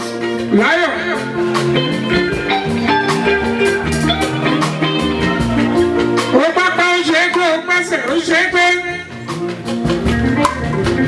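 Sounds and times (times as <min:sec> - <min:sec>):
drum and percussion beat: 0:00.0 - 0:11.0
keyboard chords: 0:00.0 - 0:11.0.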